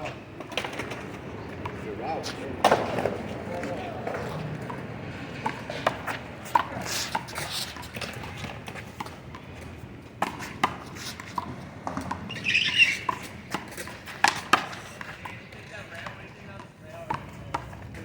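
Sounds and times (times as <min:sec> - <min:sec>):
brief squeak: 0:12.3 - 0:13.1.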